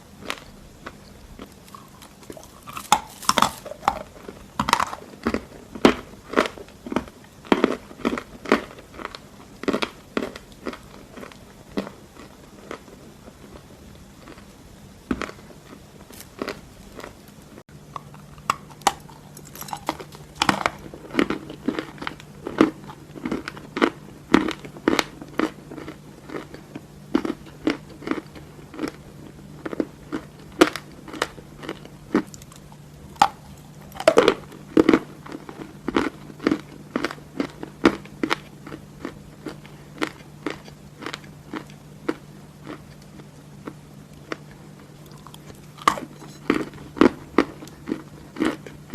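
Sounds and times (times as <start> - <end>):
faint steady hum: 0.0 - 48.9
chalk being bitten and chewed: 0.2 - 5.0.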